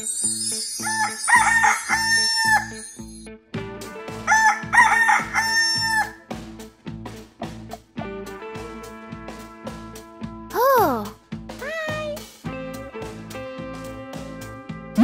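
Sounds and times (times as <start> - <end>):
rooster crowing: 0.8 - 2.8, 4.3 - 6.2
background music with steady beat: 2.3 - 15.0.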